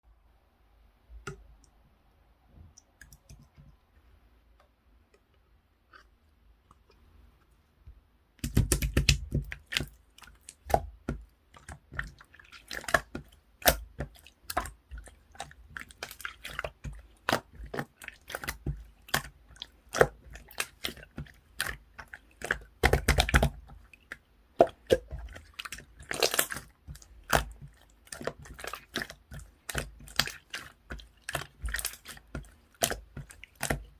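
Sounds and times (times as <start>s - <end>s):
slime squished by hand: 8.4s - 33.9s.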